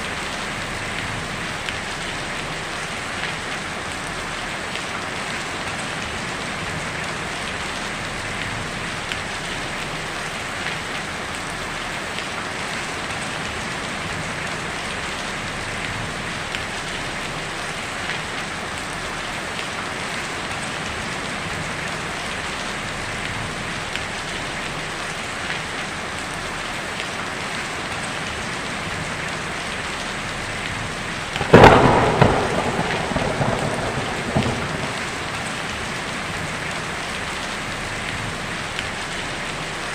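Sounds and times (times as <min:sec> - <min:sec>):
heavy rain on a tin roof: 0:00.0 - 0:39.9
thunderclap: 0:31.4 - 0:36.7.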